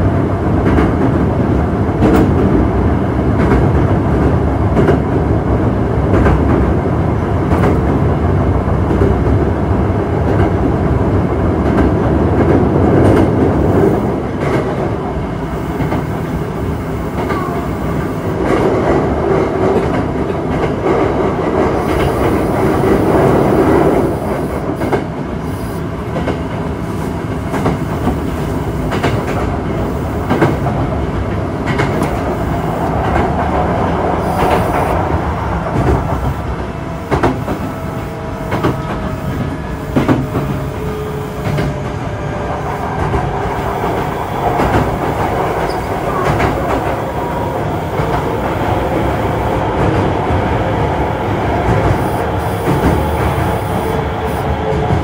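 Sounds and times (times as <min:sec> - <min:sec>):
train wheels rumbling on rails: 0:00.0 - 0:55.0
clicks from rail joints: 0:31.6 - 0:32.3, 0:43.0 - 0:47.0.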